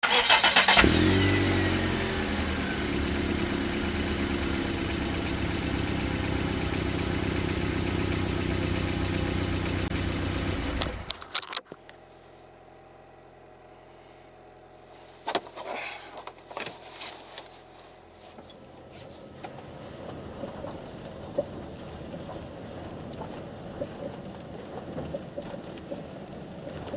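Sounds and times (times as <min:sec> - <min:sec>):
car engine starting and idling: 0:00.0 - 0:11.6.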